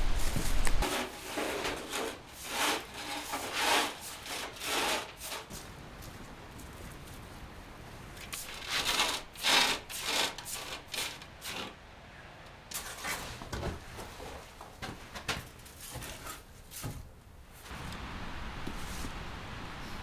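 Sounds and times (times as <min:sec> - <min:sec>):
hand saw rasping through wood: 0:00.8 - 0:05.6, 0:08.4 - 0:11.7.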